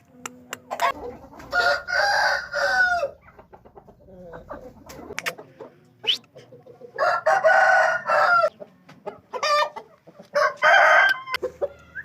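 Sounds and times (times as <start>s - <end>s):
rooster crowing: 1.5s - 3.2s, 7.0s - 8.5s, 10.4s - 12.0s.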